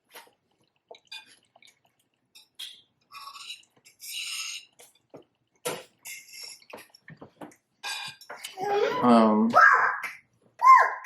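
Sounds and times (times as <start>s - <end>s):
person chewing: 0.0s - 8.6s.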